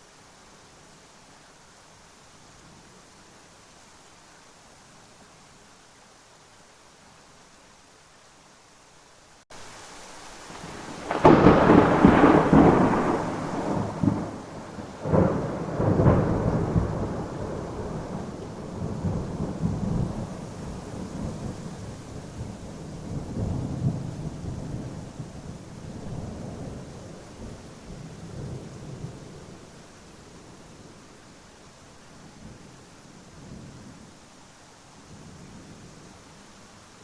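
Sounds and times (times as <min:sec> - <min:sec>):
steady rain: 0:00.0 - 0:37.0
thunder rumbling: 0:10.5 - 0:29.6.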